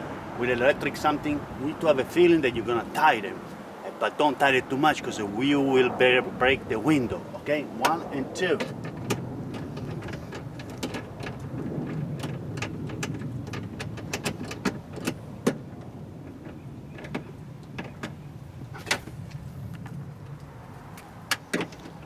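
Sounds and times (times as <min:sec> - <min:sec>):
steady low rumble: 0:00.0 - 0:21.3
hand tools clicking and knocking: 0:07.8 - 0:19.2, 0:21.0 - 0:22.0.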